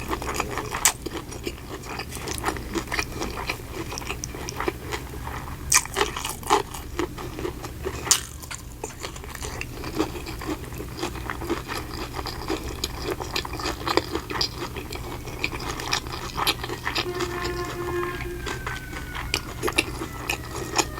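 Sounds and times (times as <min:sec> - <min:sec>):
steady low hum: 0:14.9 - 0:20.9.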